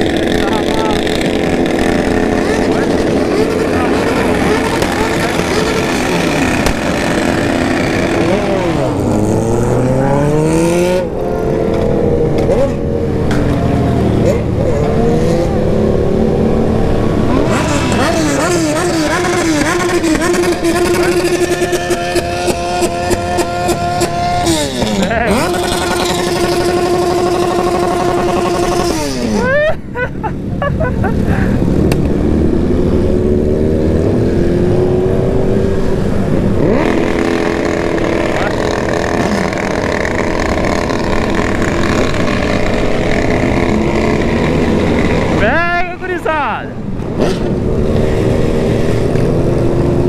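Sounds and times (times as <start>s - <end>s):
rev limiter crackles: 0.0s - 9.1s
motorcycle engine on rev limiter: 0.0s - 29.5s, 31.9s - 45.5s.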